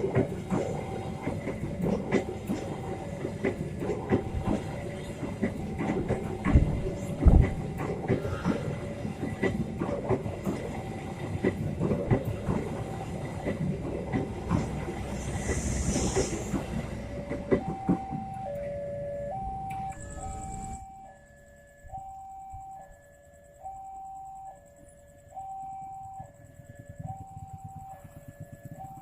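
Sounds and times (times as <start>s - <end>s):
train wheels clattering over rail joints: 0.0s - 18.3s
two-tone crossing warning alarm: 0.0s - 29.0s.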